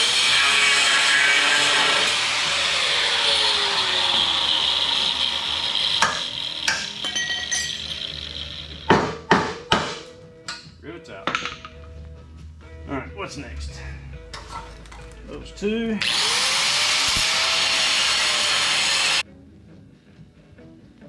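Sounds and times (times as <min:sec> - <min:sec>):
power tool hissing: 0:00.0 - 0:09.3, 0:16.0 - 0:19.2
hammer blows on steel: 0:03.9 - 0:12.0.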